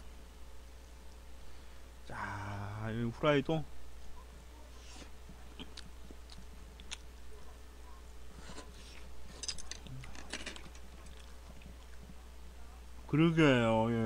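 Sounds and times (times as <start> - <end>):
steady low hum: 0.0 - 14.0
man chewing food: 5.3 - 7.2, 8.4 - 12.3.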